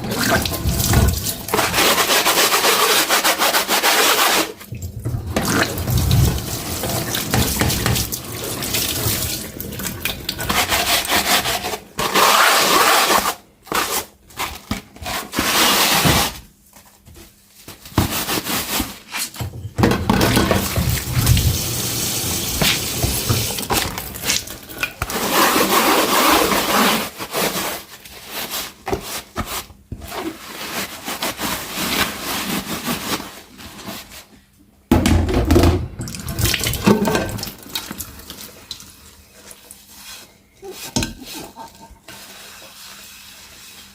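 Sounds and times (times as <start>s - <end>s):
tap water running into sink: 4.9s - 10.5s, 20.4s - 24.7s.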